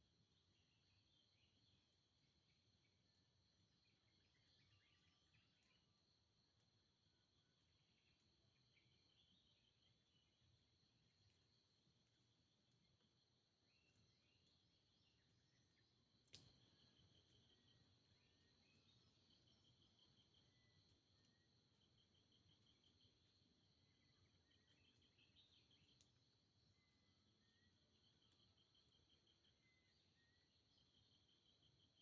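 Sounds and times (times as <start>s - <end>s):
click: 16.2s - 16.6s.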